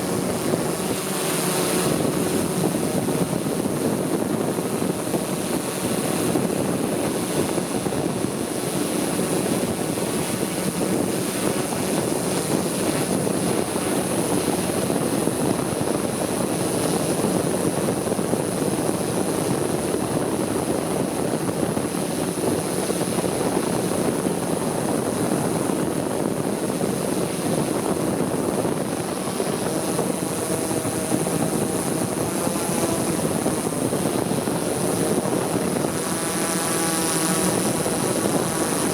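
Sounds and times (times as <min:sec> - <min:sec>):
drone propellers buzzing: 0:00.0 - 0:38.9.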